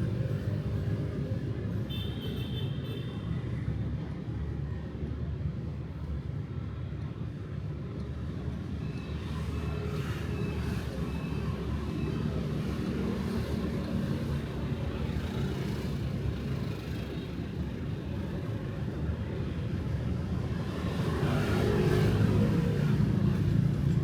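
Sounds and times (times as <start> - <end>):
motorbikes and cars passing: 20.3 - 24.0.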